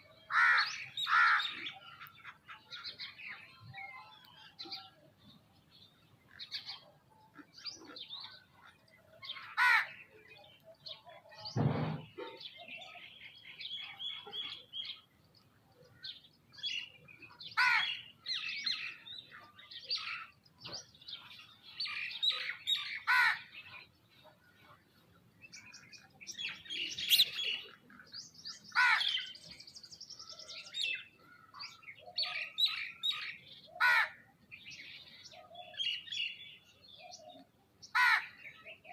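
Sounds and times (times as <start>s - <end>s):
birds chirping and calling: 0.0s - 38.9s
dull thump: 11.6s - 12.1s.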